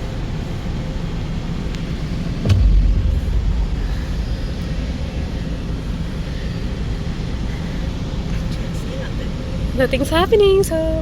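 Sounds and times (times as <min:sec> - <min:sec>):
car wash rumble: 0:00.0 - 0:11.0
sharp knock: 0:02.4 - 0:05.5.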